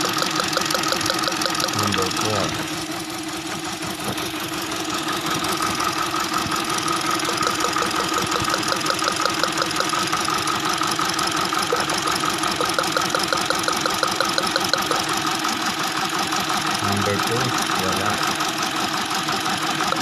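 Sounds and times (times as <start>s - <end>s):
fast even ticking: 0.0s - 2.9s, 6.4s - 15.8s
car engine idling rough: 0.0s - 20.0s.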